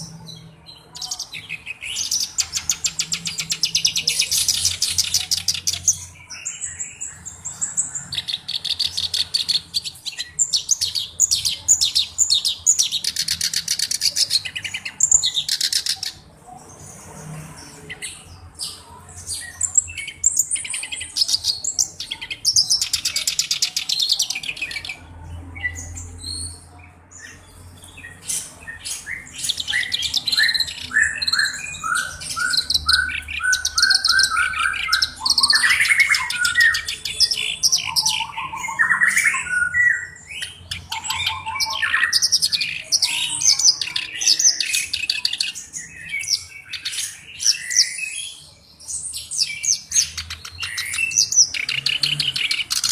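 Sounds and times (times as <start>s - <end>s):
reed warbler singing: 0.0s - 52.9s.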